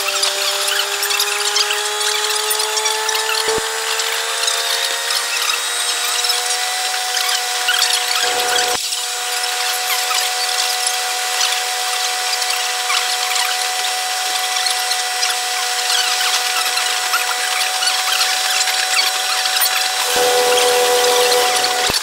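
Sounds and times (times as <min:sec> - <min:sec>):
high-pitched train whine: 0:07.8 - 0:10.1, 0:19.8 - 0:22.0
low hum: 0:20.0 - 0:22.0.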